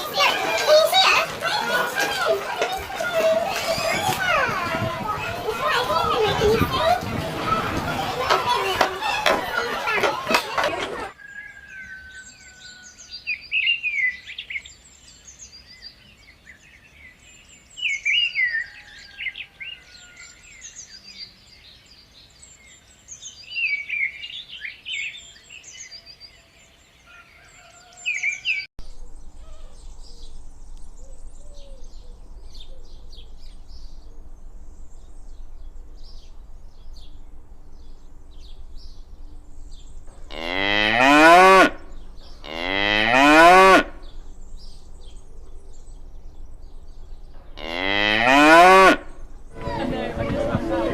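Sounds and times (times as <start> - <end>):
birds chirping: 0.0 - 50.9
steady low hum: 28.8 - 40.7, 41.6 - 42.8, 43.8 - 50.9.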